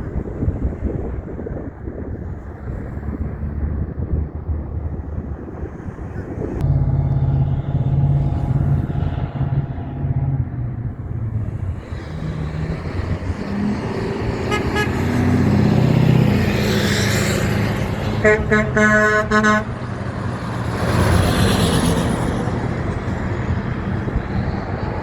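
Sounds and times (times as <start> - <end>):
traffic: 0.0 - 25.0
heavy diesel truck engine running: 6.3 - 25.0.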